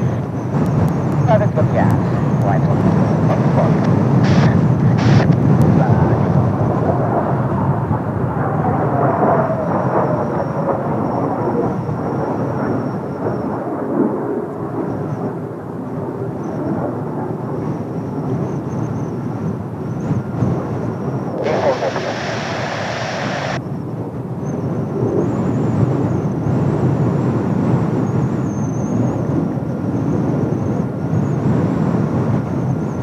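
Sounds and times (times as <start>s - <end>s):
jet engines rumbling: 0.0s - 33.0s
faint falling whine: 21.3s - 23.6s.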